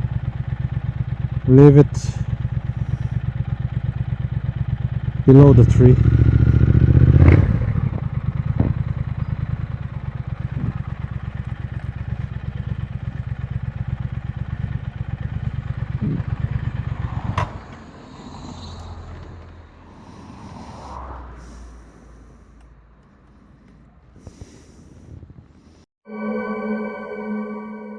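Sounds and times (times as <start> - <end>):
motorcycle engine idling: 0.0 - 17.7.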